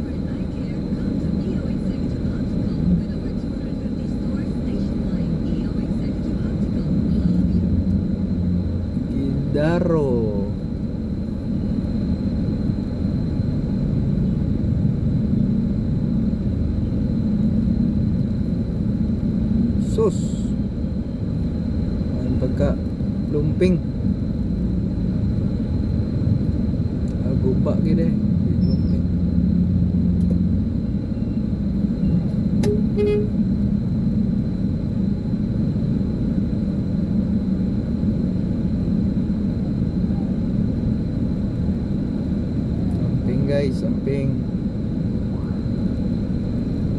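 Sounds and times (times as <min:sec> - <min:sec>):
motor vehicles rumbling: 0:00.0 - 0:46.9
faint high tone: 0:32.6 - 0:33.4
car horn toot: 0:32.6 - 0:33.5.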